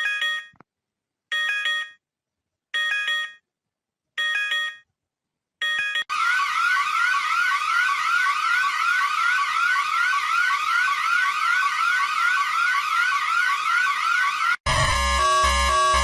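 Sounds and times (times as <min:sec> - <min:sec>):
electronic alert siren sweeping: 0:06.1 - 0:16.0.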